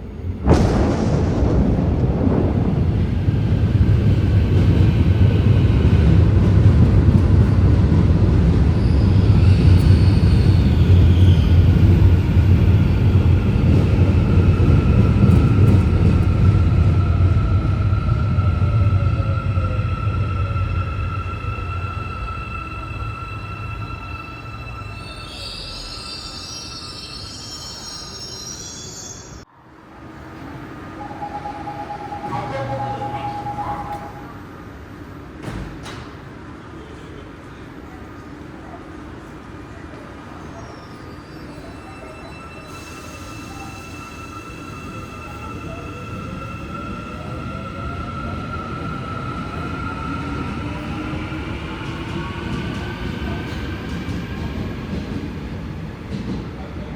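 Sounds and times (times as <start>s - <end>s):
train rumbling on rails: 0.0s - 56.9s
high-pitched wheel squeal: 31.0s - 34.4s.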